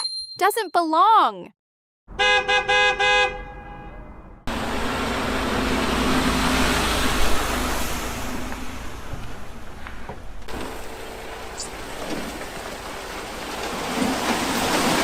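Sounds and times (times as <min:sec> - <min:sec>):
road noise: 0:02.1 - 0:15.0
truck engine: 0:04.1 - 0:15.0.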